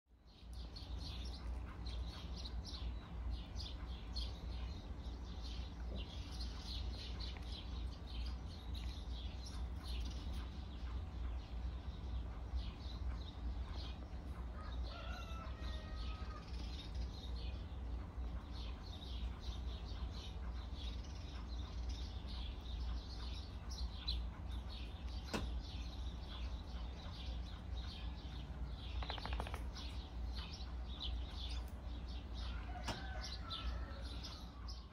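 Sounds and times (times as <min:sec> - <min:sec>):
birds chirping: 0:00.1 - 0:34.9
steady low hum: 0:00.1 - 0:34.9.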